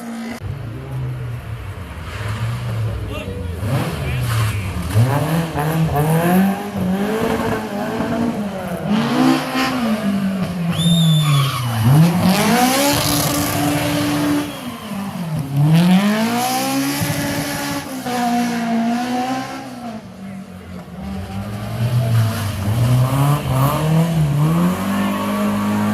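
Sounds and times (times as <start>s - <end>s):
car engine revving: 0.0s - 25.9s
short high squeal: 10.7s - 11.8s.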